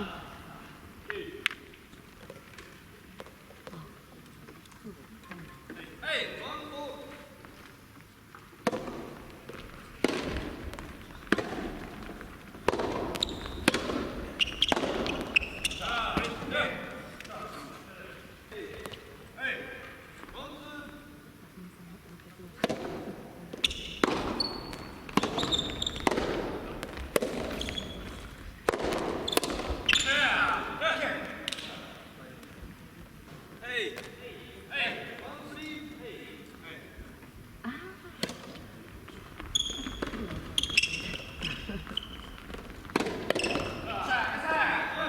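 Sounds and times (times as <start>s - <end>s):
shoes squeaking on court: 1.5s - 5.9s, 7.0s - 20.4s, 22.6s - 32.6s, 38.2s - 45.0s
tennis ball struck by rackets: 8.6s - 16.5s, 22.6s - 27.8s, 28.6s - 29.9s, 42.8s - 43.8s.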